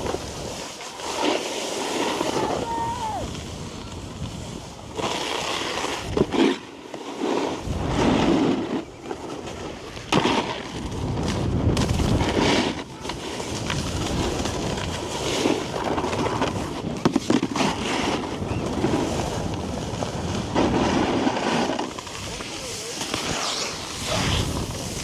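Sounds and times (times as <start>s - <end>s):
snowboard scraping over snow: 0.0s - 25.0s
wind buffeting microphone: 10.7s - 17.0s, 17.6s - 21.2s, 22.0s - 25.0s.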